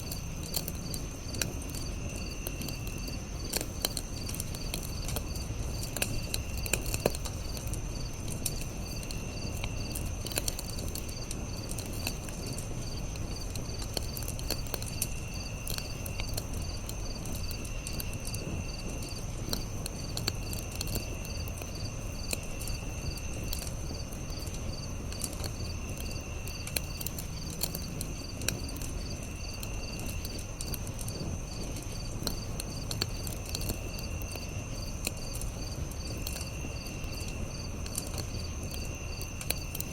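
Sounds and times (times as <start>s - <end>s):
campfire crackling: 0.0s - 39.9s
insect trills: 0.0s - 39.9s
insects pulsing: 0.0s - 39.9s.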